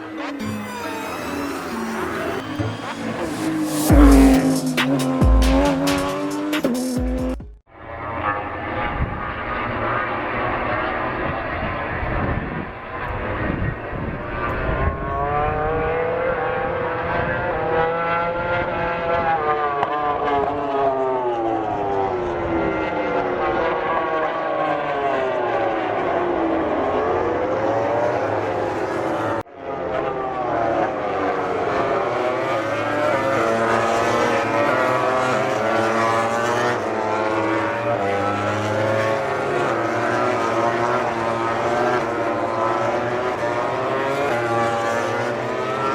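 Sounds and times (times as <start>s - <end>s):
racing motorcycles passing: 1.2s - 7.4s, 30.0s - 45.9s.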